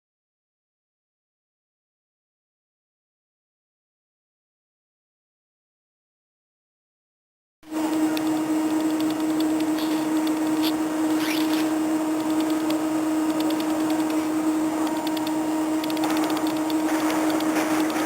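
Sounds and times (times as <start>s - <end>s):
electrical hum: 7.6s - 18.0s
high gliding squeak: 9.8s - 11.8s.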